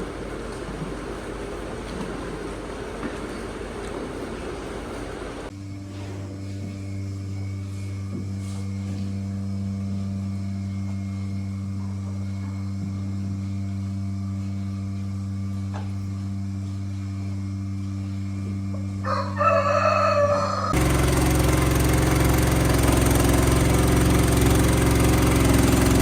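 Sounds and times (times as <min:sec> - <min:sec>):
low mechanical hum: 0:00.0 - 0:26.0
rooster crowing: 0:19.0 - 0:20.8.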